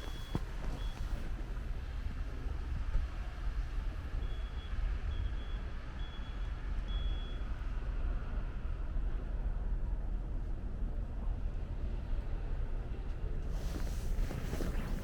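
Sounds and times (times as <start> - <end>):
street noise rumble: 13.4 - 15.0
wind on microphone: 13.6 - 15.0.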